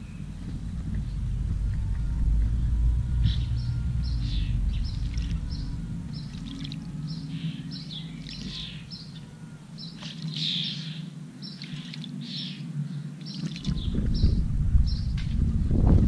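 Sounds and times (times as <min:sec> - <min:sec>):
high bird chirps: 0:00.0 - 0:12.7
low steady hum: 0:00.0 - 0:16.0
bird splashing in water: 0:04.9 - 0:05.6, 0:06.2 - 0:06.9, 0:10.0 - 0:10.6, 0:11.6 - 0:12.2, 0:13.2 - 0:13.8.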